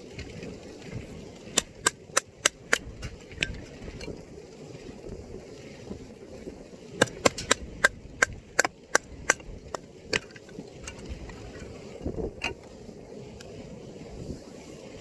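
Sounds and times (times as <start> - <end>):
sharp knocks: 7.0 - 9.4.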